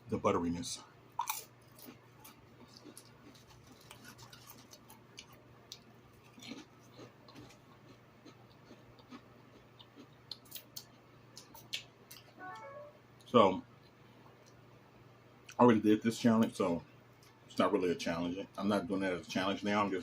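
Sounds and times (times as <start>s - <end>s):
low steady hum: 0.0s - 20.0s
chewing sandwich: 1.1s - 12.3s.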